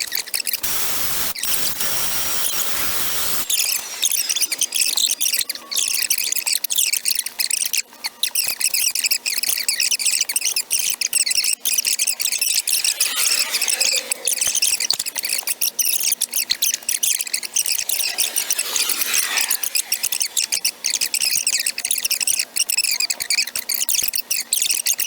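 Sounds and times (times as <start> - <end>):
power grinder on metal: 0.6 - 5.9, 12.3 - 15.6, 16.5 - 21.7.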